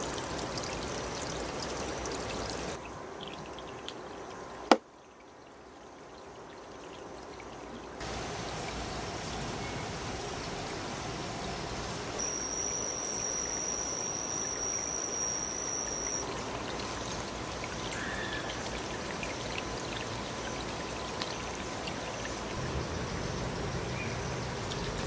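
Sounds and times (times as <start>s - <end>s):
running water trickling: 0.0s - 25.0s
thin high steady tone: 8.0s - 25.0s.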